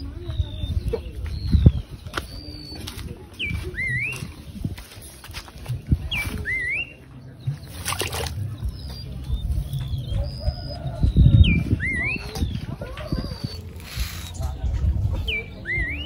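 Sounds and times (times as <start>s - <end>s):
bird whistled call: 1.4s - 4.3s, 6.1s - 14.6s, 15.2s - 16.0s.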